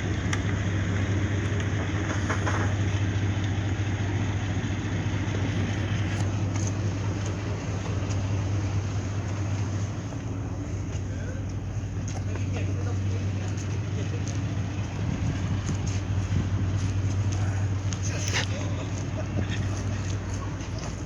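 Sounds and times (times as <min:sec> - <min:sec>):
diesel engine humming: 0:00.0 - 0:21.0.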